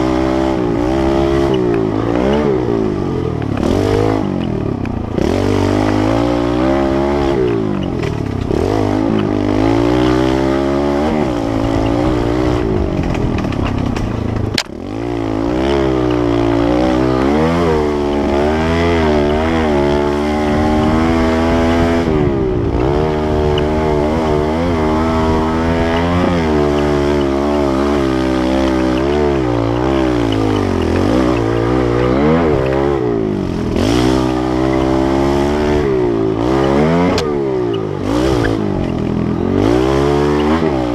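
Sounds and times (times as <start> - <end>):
motorbike engine revving: 0.0 - 40.9
sharp click: 25.9 - 39.2.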